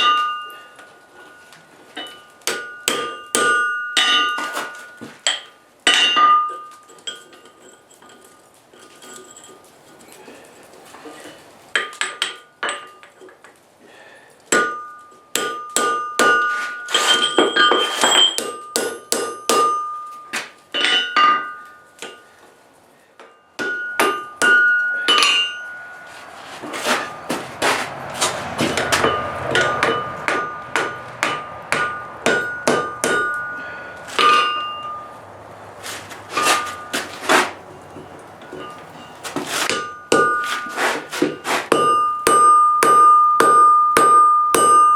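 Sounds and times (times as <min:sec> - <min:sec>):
hammer striking steel on anvil: 0:00.0 - 0:01.4, 0:02.0 - 0:06.8, 0:14.5 - 0:22.2, 0:23.2 - 0:26.1, 0:26.7 - 0:35.3, 0:38.4 - 0:44.9
anvil ringing: 0:00.0 - 0:06.9, 0:14.5 - 0:22.2, 0:23.2 - 0:35.5, 0:36.2 - 0:40.8, 0:41.7 - 0:44.9.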